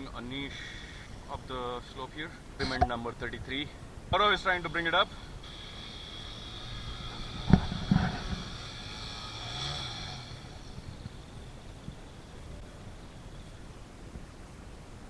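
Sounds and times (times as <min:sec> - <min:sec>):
sharp knocks: 0:02.6 - 0:03.1
dirt bike engine running: 0:04.2 - 0:13.4.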